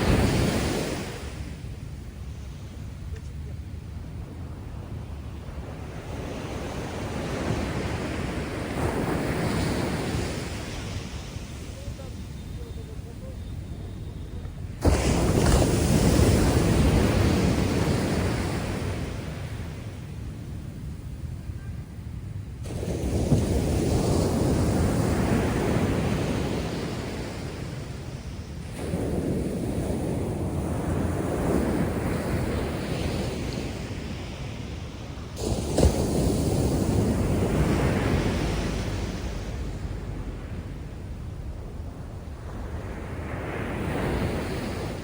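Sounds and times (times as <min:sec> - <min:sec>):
heavy wave breaking and washing up: 0:00.0 - 0:45.0
low rumble of sea: 0:00.0 - 0:45.0.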